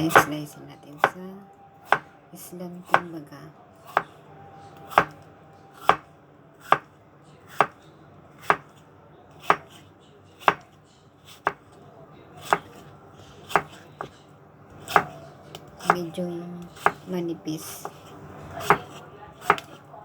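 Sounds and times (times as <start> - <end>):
knife slicing on cutting board: 1.9 - 2.1, 4.8 - 5.2, 5.8 - 6.0, 6.6 - 6.9, 7.5 - 7.8, 8.4 - 9.8, 12.4 - 14.1, 14.8 - 16.0, 17.8 - 19.8.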